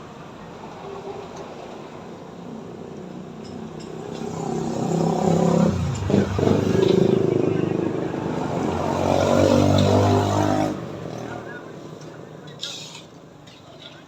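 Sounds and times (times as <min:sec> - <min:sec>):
vehicle engine approaching: 0:04.0 - 0:11.8.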